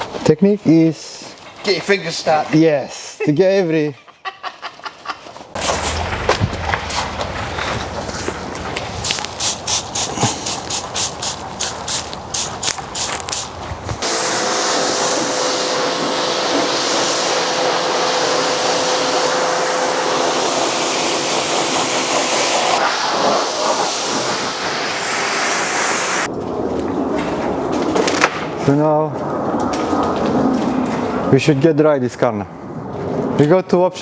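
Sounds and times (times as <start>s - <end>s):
pressure washer spraying water: 5.6s - 26.3s.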